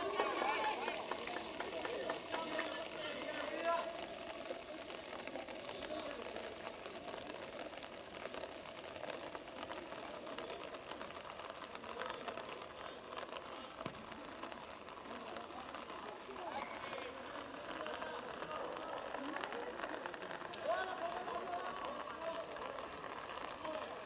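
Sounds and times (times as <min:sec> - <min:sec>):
distant players calling out: 0:00.0 - 0:05.6, 0:12.4 - 0:24.0
outdoor background noise: 0:00.0 - 0:24.0.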